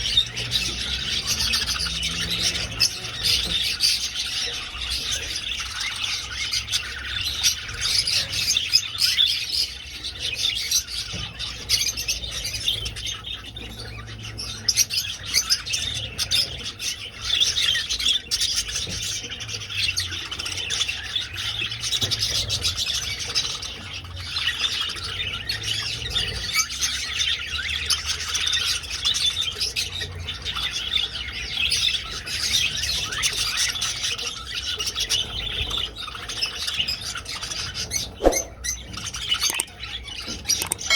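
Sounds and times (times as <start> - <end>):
budgerigars chattering: 0.0 - 40.9.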